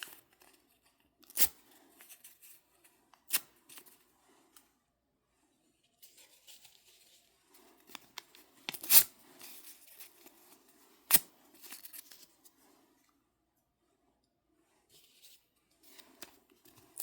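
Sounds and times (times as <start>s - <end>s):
paper rustling: 6.0s - 10.6s.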